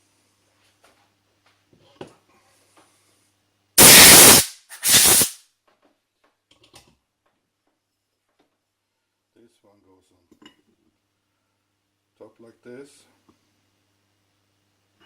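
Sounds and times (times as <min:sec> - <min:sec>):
pressurised gas hissing blasts: 0:03.8 - 0:05.4.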